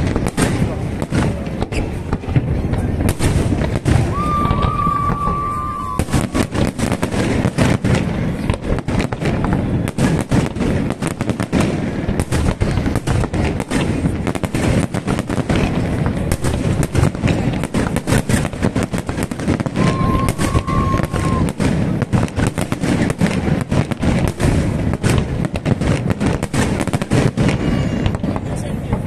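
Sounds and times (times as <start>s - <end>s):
fireworks bangs and crackling: 0.0s - 29.0s
firework whistle: 3.1s - 7.2s, 19.4s - 21.8s, 26.6s - 28.4s.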